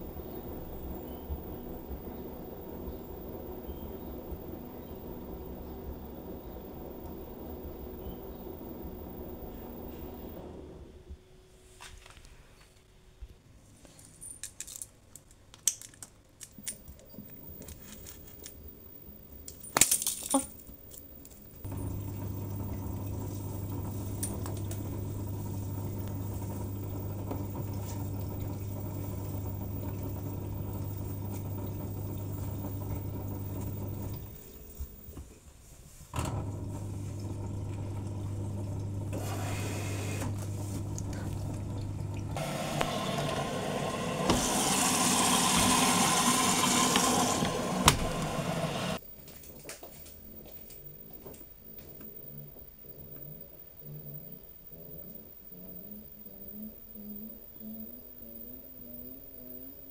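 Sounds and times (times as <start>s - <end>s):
washing machine motor humming: 0.0s - 11.2s, 21.4s - 35.4s, 36.1s - 49.0s.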